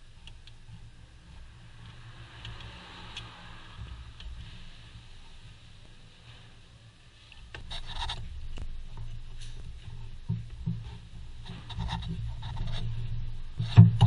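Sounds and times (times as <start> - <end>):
low steady hum: 0.0 - 14.0
scraping and rubbing with clicks: 7.3 - 14.0.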